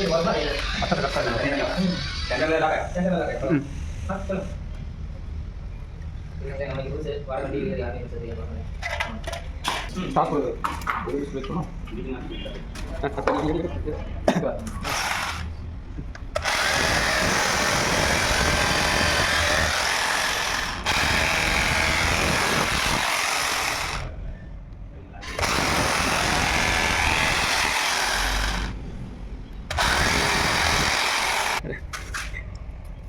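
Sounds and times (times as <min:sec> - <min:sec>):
electric power drill running: 0:14.8 - 0:15.5, 0:16.4 - 0:24.1, 0:25.2 - 0:28.8, 0:29.7 - 0:31.6.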